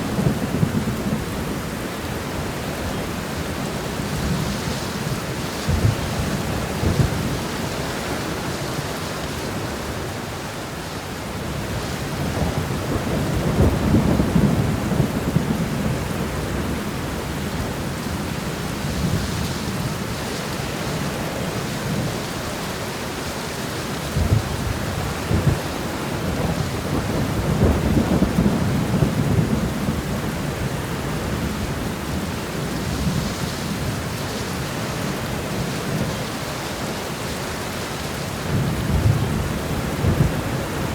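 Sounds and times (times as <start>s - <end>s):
steady rain shower: 0.0s - 40.9s
thunder rolling: 4.1s - 7.8s, 11.7s - 19.9s, 24.1s - 34.2s, 38.4s - 40.9s.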